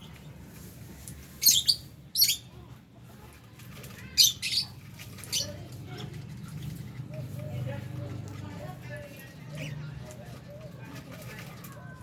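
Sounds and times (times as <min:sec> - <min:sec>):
lovebirds calling shrilly: 0:01.2 - 0:02.6, 0:04.0 - 0:05.7.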